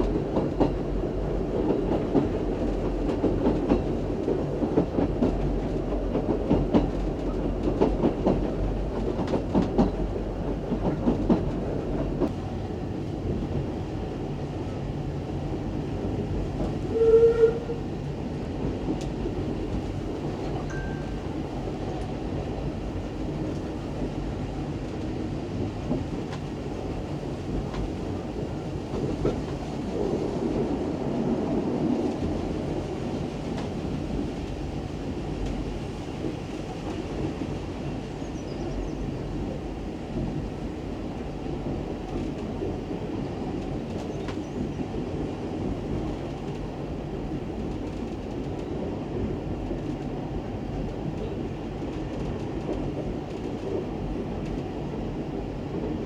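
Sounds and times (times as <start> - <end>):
train rumble: 0.0 - 56.0
train whistle: 16.8 - 17.9.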